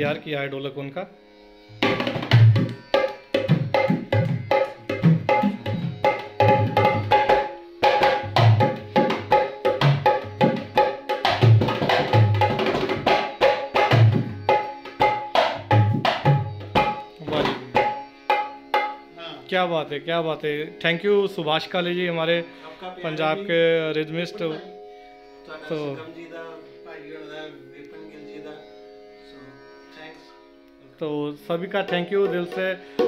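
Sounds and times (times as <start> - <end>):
dholak drumming: 0.0 - 0.2, 1.8 - 19.0, 31.7 - 33.0.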